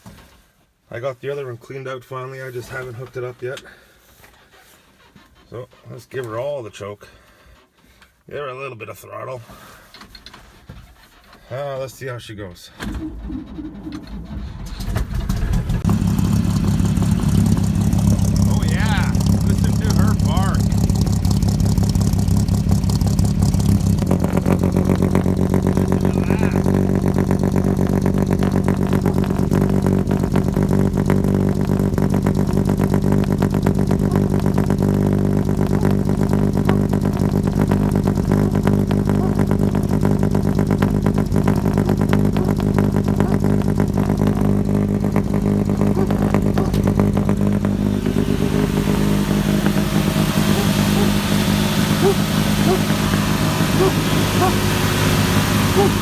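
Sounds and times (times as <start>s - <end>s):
barking exhaust: 12.8s - 56.0s
truck engine running: 13.0s - 56.0s.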